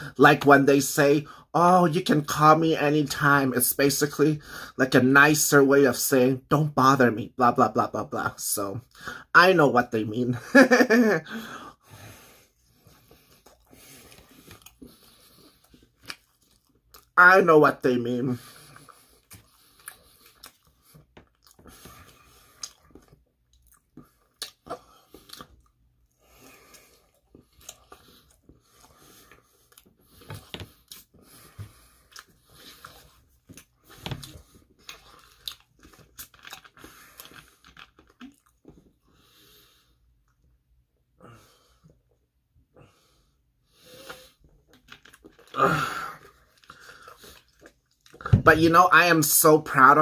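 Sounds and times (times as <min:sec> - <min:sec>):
person chewing pizza: 0:12.1 - 0:17.2, 0:18.4 - 0:40.5, 0:42.9 - 0:48.4.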